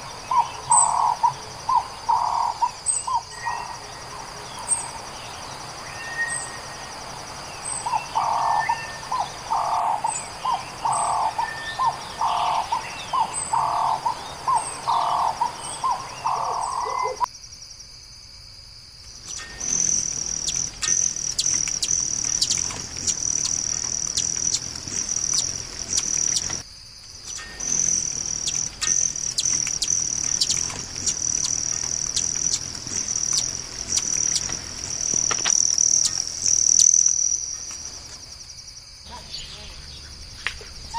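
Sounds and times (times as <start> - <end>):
bird calling: 0.0 - 7.0, 7.6 - 17.3, 19.3 - 26.6, 27.3 - 38.0
insect trilling: 0.0 - 17.7, 19.1 - 40.9
bird chirps and clicks: 19.3 - 26.6, 27.3 - 37.9.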